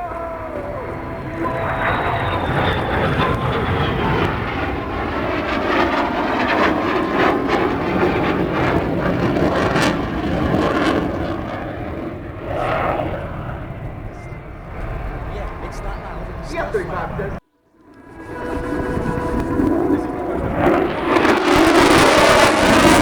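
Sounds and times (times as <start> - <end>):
faint high whine: 0.0 - 5.2, 13.0 - 22.3
aircraft flying past: 0.0 - 23.0.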